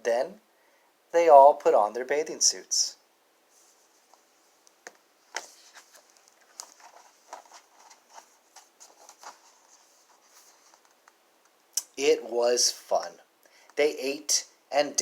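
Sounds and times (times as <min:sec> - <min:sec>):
soft rustles: 0:03.5 - 0:11.2.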